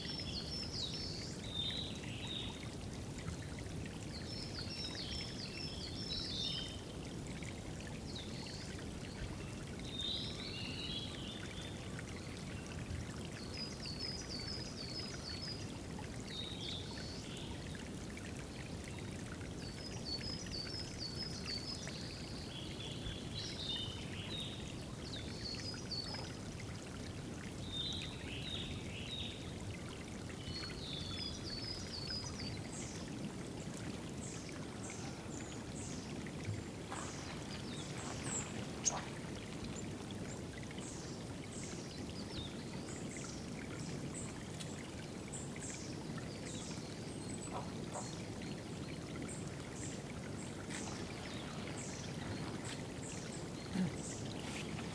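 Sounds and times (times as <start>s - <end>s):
water trickling and splashing: 0.0s - 54.9s
songbirds singing: 27.6s - 54.9s.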